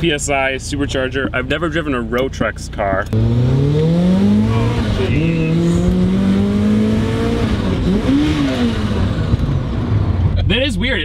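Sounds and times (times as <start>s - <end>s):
car engine accelerating hard: 3.1s - 10.5s.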